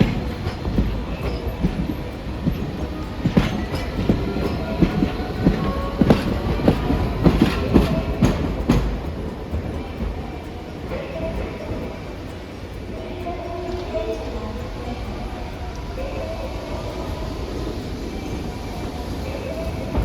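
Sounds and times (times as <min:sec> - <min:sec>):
faint wheel squeal: 0:00.0 - 0:08.8
wheels knocking over rail joints: 0:00.0 - 0:12.5
streetcar rumble: 0:00.0 - 0:20.0.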